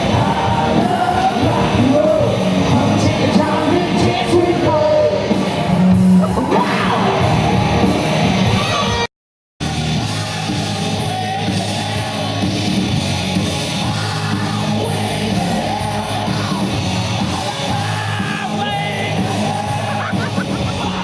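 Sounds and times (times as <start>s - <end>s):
shouted singing: 0.0s - 5.2s, 9.6s - 21.0s
rock music: 0.0s - 21.0s.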